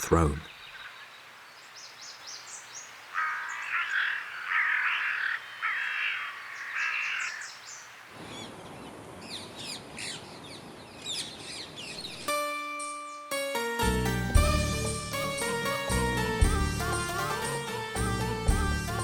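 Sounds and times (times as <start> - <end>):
small birds chirping: 0.0 - 12.3
crow cawing: 3.1 - 7.6.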